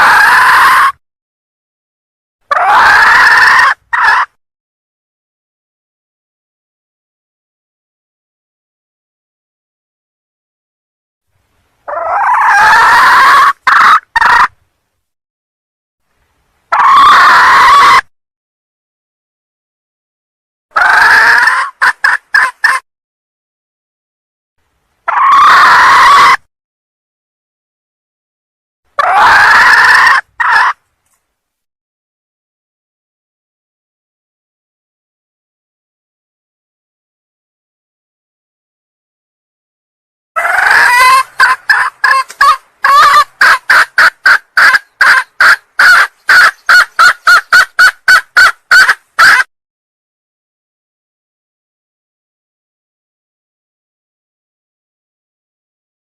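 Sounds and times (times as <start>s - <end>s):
junglefowl calling: 2.5s - 4.3s, 11.9s - 14.6s, 16.7s - 18.1s, 20.8s - 22.8s, 25.1s - 26.4s, 29.0s - 30.8s, 40.4s - 49.5s
hen squawking: 11.9s - 14.5s, 40.4s - 49.5s.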